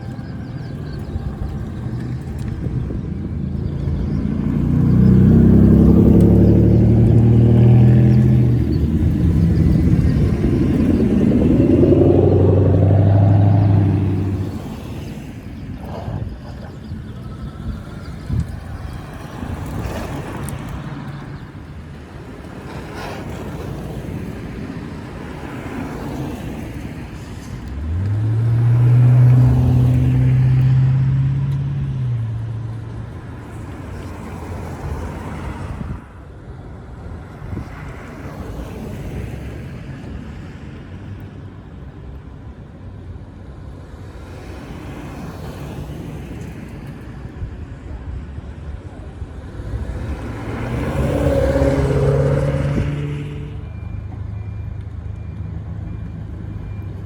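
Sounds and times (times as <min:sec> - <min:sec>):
car exhaust drone passing: 0:00.0 - 0:36.1, 0:47.7 - 0:53.7
background traffic noise: 0:00.0 - 0:57.0.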